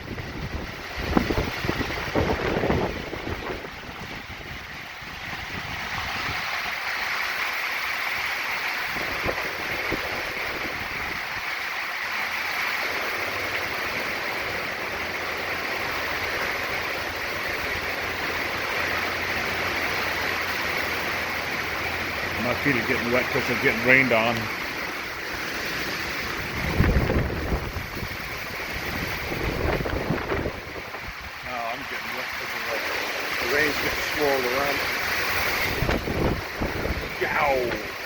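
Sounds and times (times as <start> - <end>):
heavy wind-driven rain: 0.0 - 38.0
low rumble: 24.4 - 34.0.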